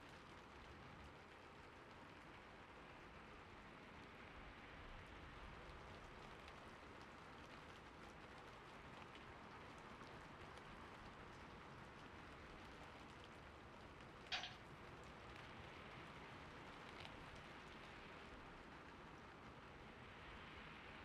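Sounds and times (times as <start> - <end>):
gentle rain: 0.0 - 21.0
faint ticks: 14.2 - 15.5.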